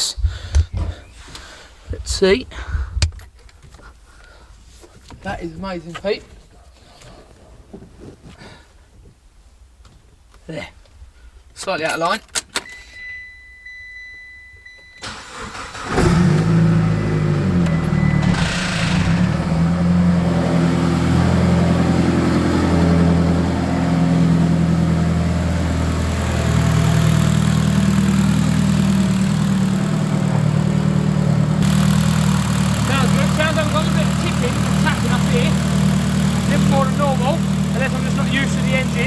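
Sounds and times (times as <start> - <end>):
car engine starting and idling: 12.1 - 39.0.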